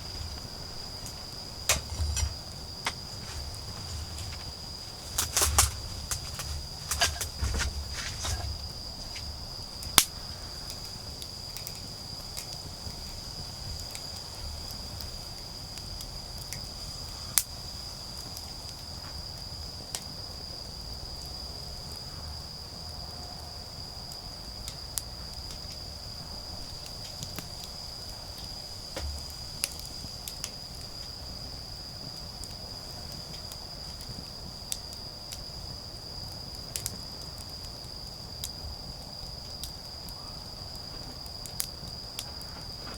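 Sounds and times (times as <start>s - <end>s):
bonfire popping: 0.0s - 16.6s, 25.5s - 42.9s
insects chorus: 0.0s - 42.9s.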